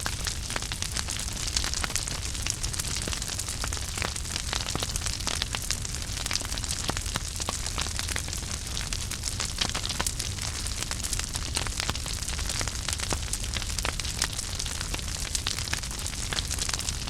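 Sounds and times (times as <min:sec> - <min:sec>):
fire hiss and low rumble: 0:00.0 - 0:17.0
wood fire crackling: 0:00.0 - 0:17.0.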